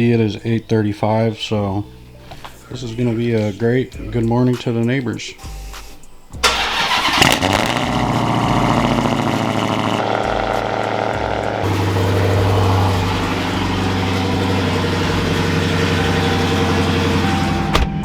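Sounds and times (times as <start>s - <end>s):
car engine idling: 6.4s - 17.8s.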